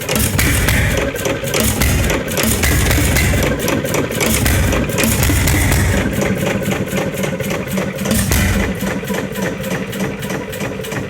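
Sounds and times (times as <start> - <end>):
gas engine clattering: 0.0 - 11.0
low thudding: 0.1 - 7.4, 8.0 - 9.2.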